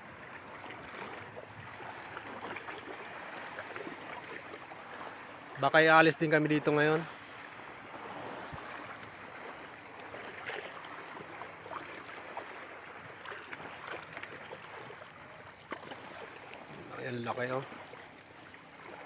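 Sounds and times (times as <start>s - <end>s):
lake water washing on shore: 0.0s - 19.0s
small splashes: 0.2s - 5.6s, 6.8s - 19.0s.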